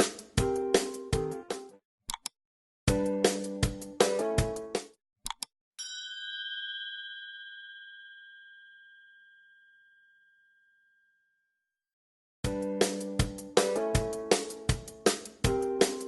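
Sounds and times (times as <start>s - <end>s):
music with a beat: 0.0s - 1.7s, 2.9s - 4.9s, 12.5s - 16.0s
bright bell ding: 5.8s - 11.2s.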